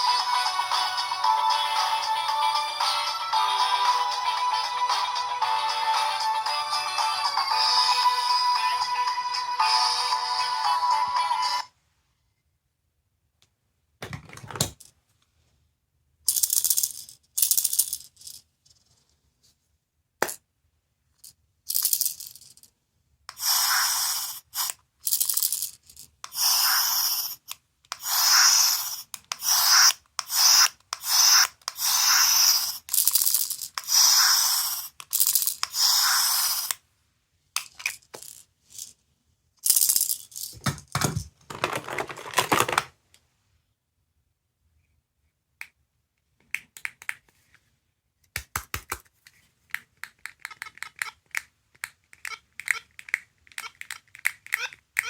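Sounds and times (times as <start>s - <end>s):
clicks and knocks from handling toy: 24.2s - 36.8s, 39.6s - 43.0s, 48.4s - 55.0s
sound effects from tiny speaker: 26.3s - 33.2s, 33.8s - 36.8s, 50.3s - 51.5s, 52.2s - 55.0s.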